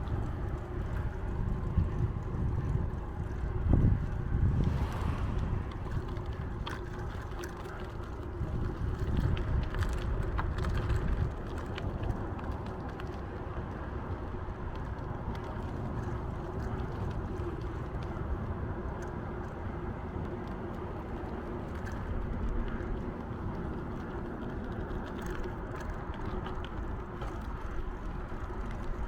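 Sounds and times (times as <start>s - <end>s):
tyre road rumble: 0.0s - 29.0s
wind buffeting microphone: 0.0s - 29.0s
light clicks and rattles: 5.8s - 29.0s.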